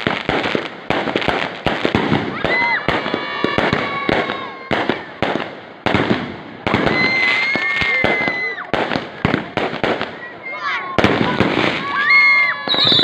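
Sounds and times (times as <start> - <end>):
fireworks bangs and crackles: 0.0 - 13.0
long high firework whistle: 6.7 - 8.7, 11.8 - 13.0.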